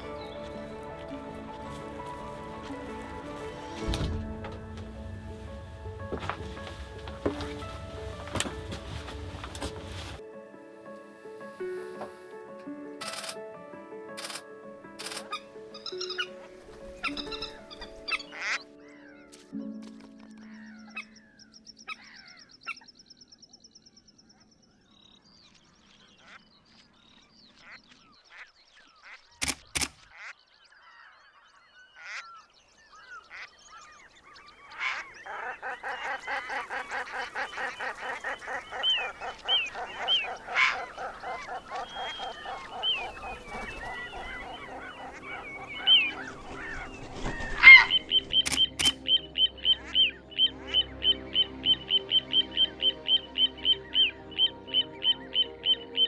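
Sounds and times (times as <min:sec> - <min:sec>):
waterfowl honking calls: 0:00.0 - 0:10.2, 0:15.8 - 0:18.6, 0:34.6 - 0:56.0
sharp clicks: 0:13.0 - 0:13.4
faint bird chirps: 0:30.4 - 0:56.0.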